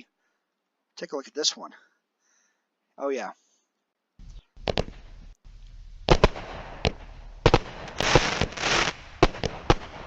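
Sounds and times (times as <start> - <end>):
fireworks cracking: 4.2 - 10.0
fireworks hissing and crackling: 4.2 - 10.0.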